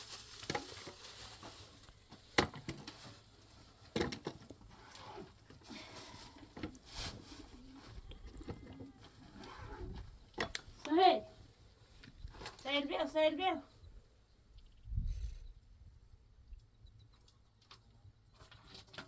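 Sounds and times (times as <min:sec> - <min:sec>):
rustling and handling noise: 0:00.0 - 0:13.6.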